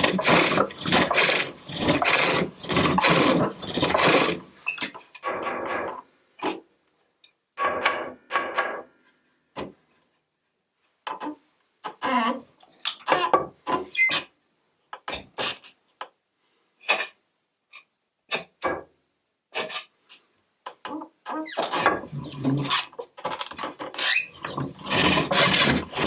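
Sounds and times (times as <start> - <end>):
hook tool scraping wood: 0.0 - 4.9, 23.9 - 26.0.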